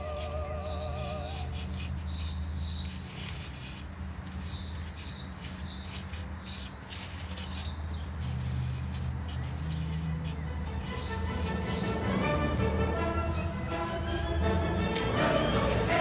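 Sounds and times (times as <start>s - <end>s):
small bird chirping: 0.1s - 12.0s.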